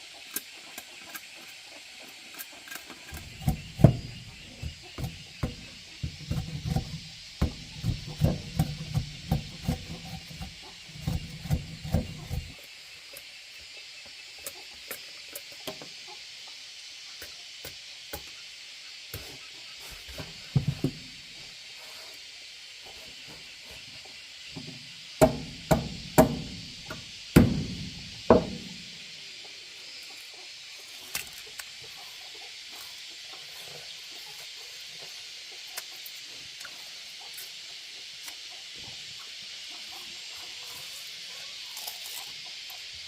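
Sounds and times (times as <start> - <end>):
steady high hiss: 0.0 - 43.0
sharp knocks on wood: 3.4 - 10.1, 25.2 - 28.8.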